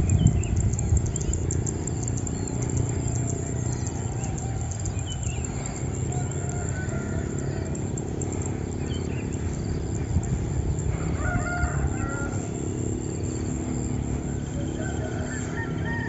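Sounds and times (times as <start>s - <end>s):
small birds chirping: 0.0s - 16.0s
rooster crowing: 5.9s - 8.0s, 10.7s - 12.8s, 13.4s - 16.0s.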